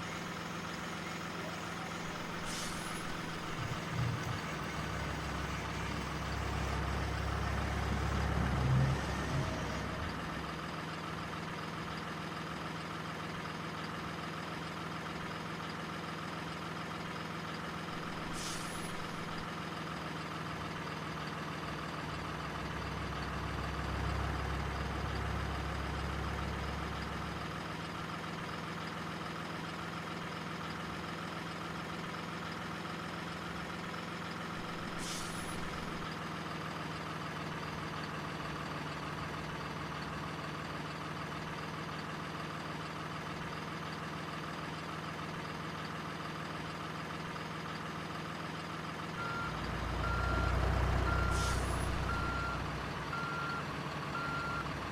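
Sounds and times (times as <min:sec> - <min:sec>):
diesel truck engine running: 0:00.0 - 0:54.9
air brake hiss: 0:02.1 - 0:06.0, 0:18.0 - 0:19.4, 0:34.6 - 0:36.1, 0:51.2 - 0:52.1
reversing beeps: 0:49.2 - 0:54.7.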